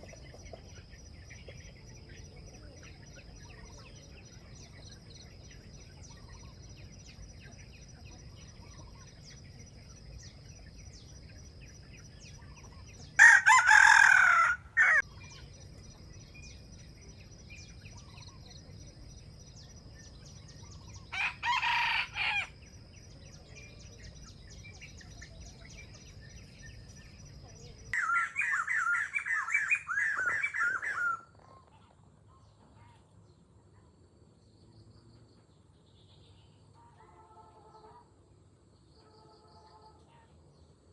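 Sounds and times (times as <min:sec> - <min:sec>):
roosters crowing: 0:12.6 - 0:15.5, 0:20.7 - 0:22.9.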